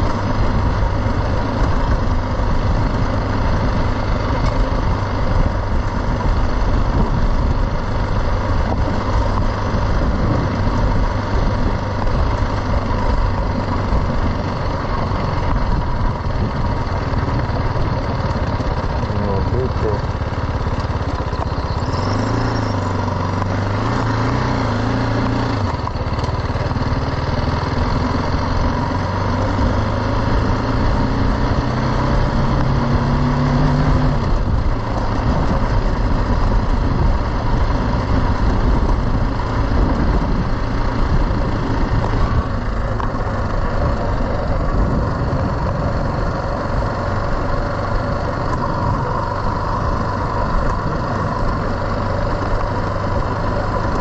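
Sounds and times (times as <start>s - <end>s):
wind rushing on microphone: 0.0s - 20.0s, 32.2s - 53.5s
motorcycle engine running: 0.0s - 54.0s.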